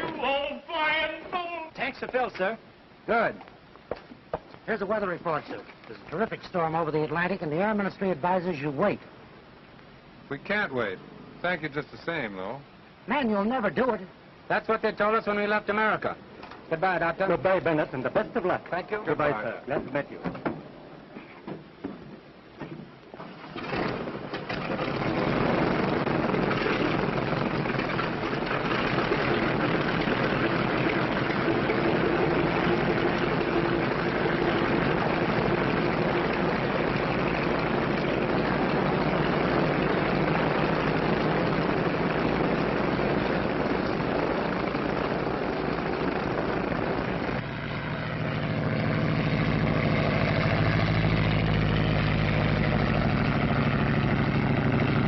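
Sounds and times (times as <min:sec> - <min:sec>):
propeller airplane engine roaring: 0:23.0 - 0:55.0.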